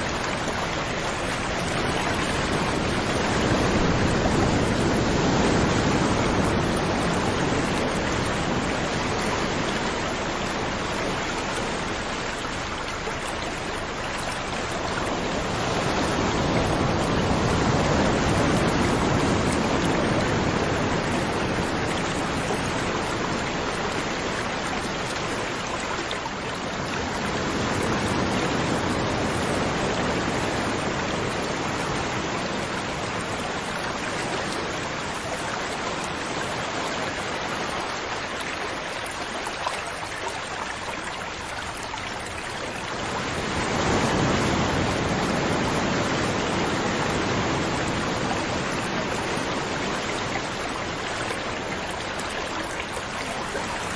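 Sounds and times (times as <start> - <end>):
rushing water: 0.0 - 53.9.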